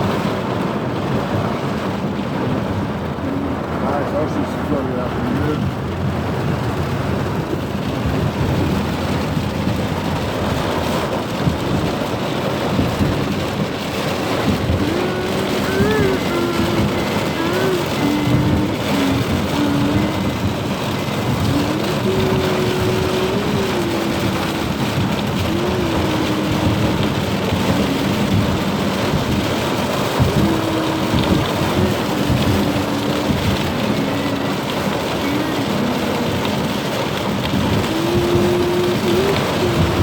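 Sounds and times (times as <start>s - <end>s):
heavy rain on a car: 0.0s - 40.0s.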